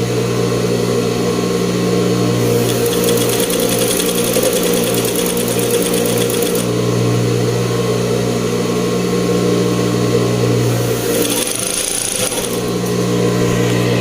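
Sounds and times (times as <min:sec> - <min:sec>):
sewing machine stitching rattle: 0:02.4 - 0:06.7, 0:10.8 - 0:13.1
sewing machine motor humming: 0:02.4 - 0:06.8, 0:10.6 - 0:13.9.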